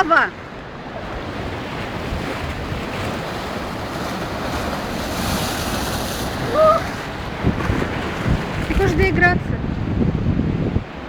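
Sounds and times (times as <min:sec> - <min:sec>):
waves breaking: 0:00.0 - 0:11.0
wind buffeting microphone: 0:00.4 - 0:11.0
short cry: 0:06.4 - 0:07.0.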